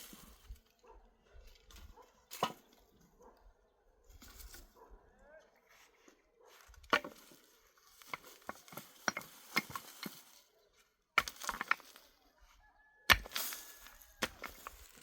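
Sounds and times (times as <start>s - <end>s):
hard objects clicking and clinking: 8.0s - 10.2s, 11.2s - 12.0s, 13.1s - 15.0s.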